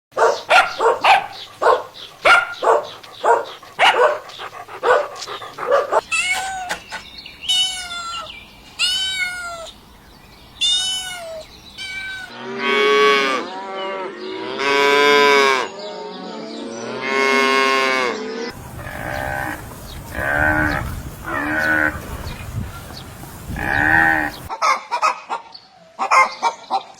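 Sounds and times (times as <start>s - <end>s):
dog barking: 0.1s - 6.0s, 24.5s - 26.9s
cat meowing: 6.1s - 6.8s, 7.5s - 9.7s, 10.6s - 12.3s
cow mooing: 12.3s - 15.7s, 18.8s - 22.3s, 23.5s - 24.5s.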